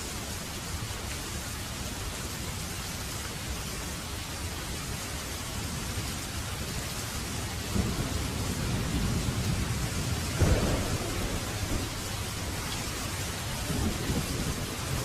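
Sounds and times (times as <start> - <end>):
heavy rain falling: 0.0 - 15.0
low rumble of thunder: 7.3 - 15.0.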